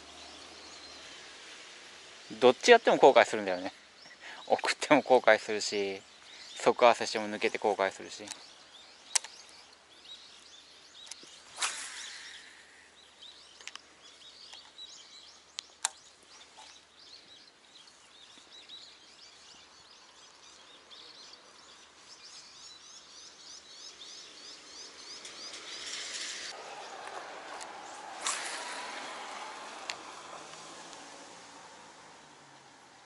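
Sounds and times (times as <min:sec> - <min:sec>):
small birds chirping: 0:00.0 - 0:33.0
sharp clicks: 0:09.1 - 0:09.4.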